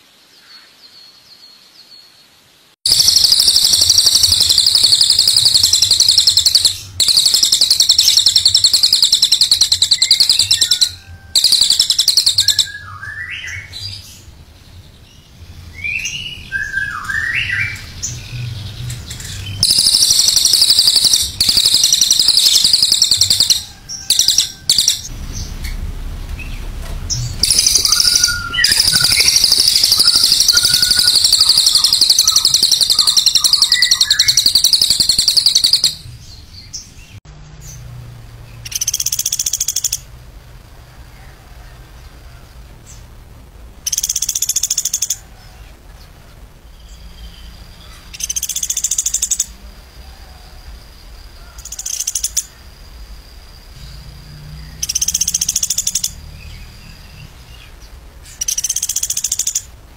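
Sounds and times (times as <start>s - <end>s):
songbird trilling: 2.9s - 14.0s, 15.8s - 25.1s, 27.2s - 36.1s, 46.9s - 49.6s, 51.4s - 52.6s, 54.6s - 57.7s, 58.4s - 59.7s.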